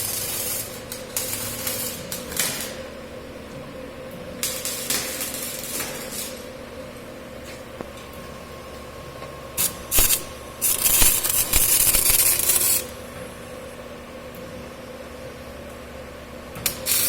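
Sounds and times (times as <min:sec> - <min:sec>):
welding torch hissing: 0:00.0 - 0:03.0, 0:04.4 - 0:06.6, 0:09.6 - 0:13.1, 0:16.6 - 0:17.0
welding machine hum: 0:00.0 - 0:14.4, 0:16.5 - 0:17.0.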